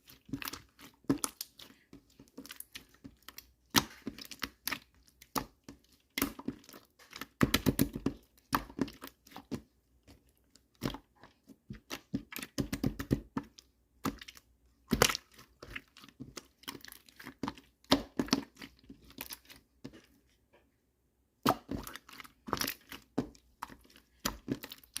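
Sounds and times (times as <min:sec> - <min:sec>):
slime squished by hand: 0:00.0 - 0:20.1, 0:21.4 - 0:25.0.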